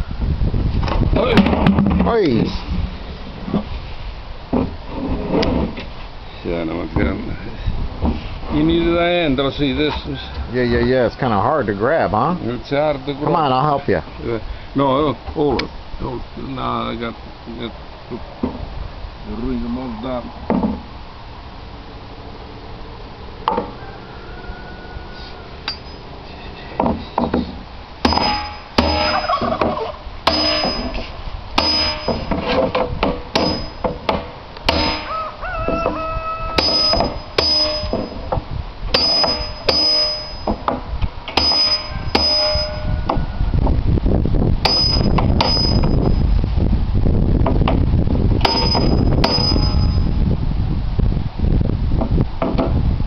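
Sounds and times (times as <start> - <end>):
hammer striking metal hoops: 25.7 - 26.0, 26.8 - 35.1, 36.6 - 38.4, 39.0 - 42.9, 44.6 - 46.1, 48.4 - 50.1.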